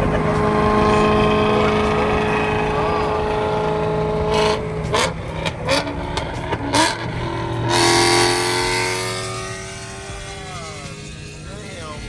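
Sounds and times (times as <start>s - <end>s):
car accelerating: 0.0s - 12.0s
car engines revving: 0.0s - 12.0s.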